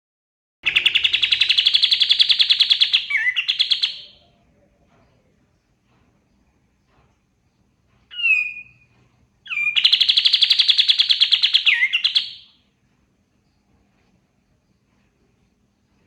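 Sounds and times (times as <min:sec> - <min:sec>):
bird whistling and trilling: 0:00.6 - 0:04.2, 0:08.1 - 0:08.8, 0:09.5 - 0:12.6.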